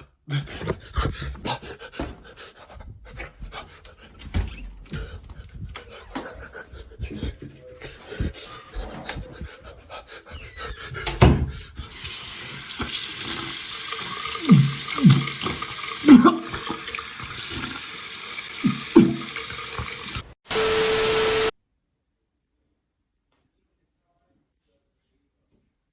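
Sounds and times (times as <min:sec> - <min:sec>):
water running from a tap: 0:11.9 - 0:20.4
loud hiss with held tone: 0:20.5 - 0:21.5.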